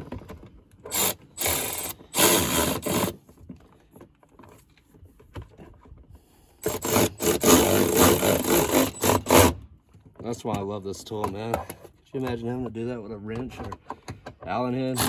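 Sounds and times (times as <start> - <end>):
cordless electric ratchet running: 0.9 - 3.2, 6.6 - 9.5.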